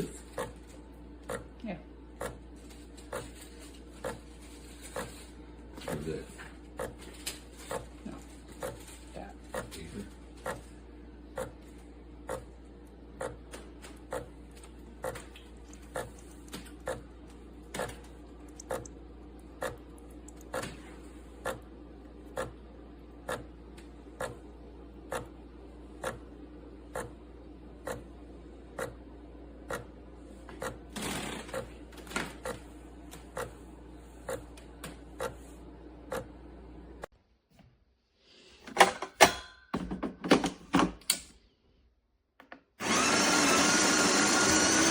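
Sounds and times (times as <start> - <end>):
espresso machine humming: 0.0 - 7.1, 7.7 - 31.7, 42.8 - 44.9.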